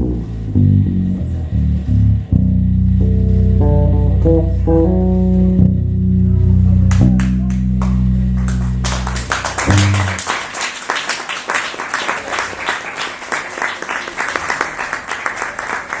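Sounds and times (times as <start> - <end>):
bass guitar low notes: 0.0 - 10.3
audience applause: 7.2 - 16.0.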